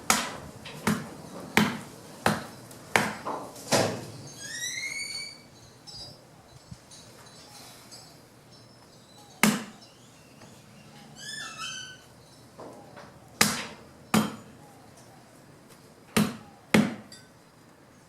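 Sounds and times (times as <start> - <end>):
bird calling: 4.1 - 15.6, 16.2 - 17.0.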